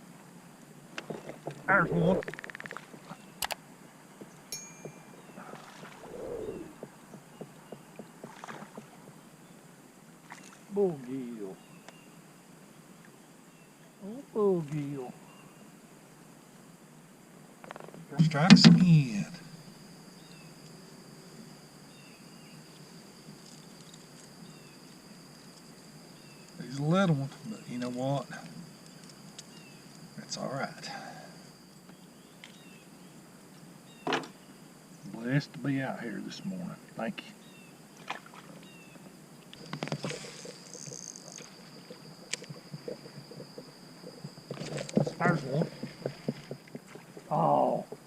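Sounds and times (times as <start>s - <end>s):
soft hiss: 0.0s - 48.0s
high insect drone: 0.8s - 3.8s, 4.4s - 48.0s
kayak knocks and clicks: 18.2s - 19.0s.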